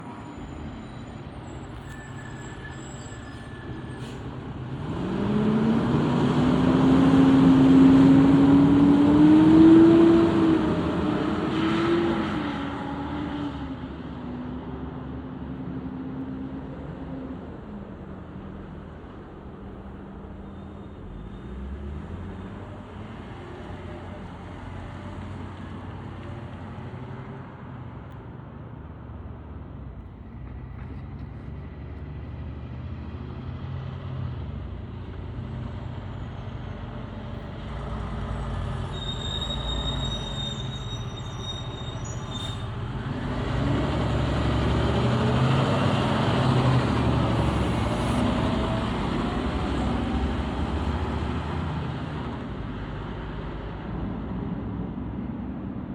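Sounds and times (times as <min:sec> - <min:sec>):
diesel engine rumbling: 0:16.4 - 0:55.6
fire engine revving: 0:42.6 - 0:53.6.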